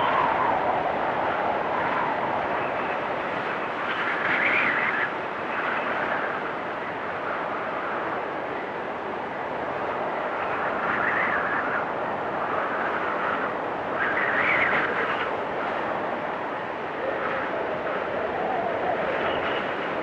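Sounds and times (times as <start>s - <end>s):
storm wind howling: 0.0s - 20.0s.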